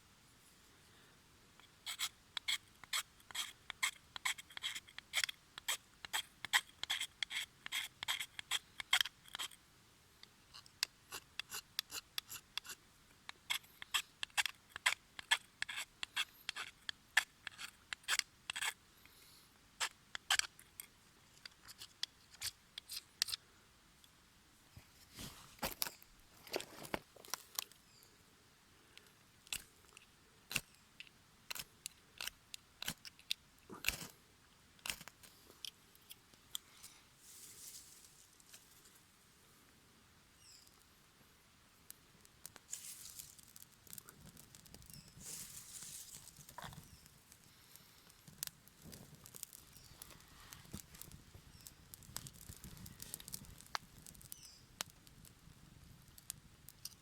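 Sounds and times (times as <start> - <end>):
wood fire crackling: 42.2 - 56.9.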